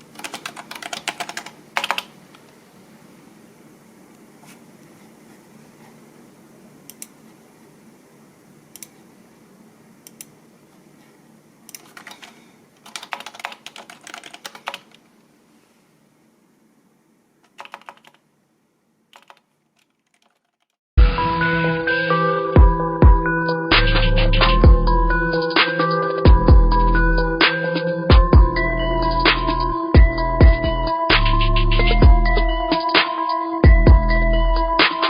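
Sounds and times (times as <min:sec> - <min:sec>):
keyboard typing: 0:00.0 - 0:02.2, 0:11.7 - 0:15.0, 0:17.4 - 0:18.2, 0:19.1 - 0:20.8.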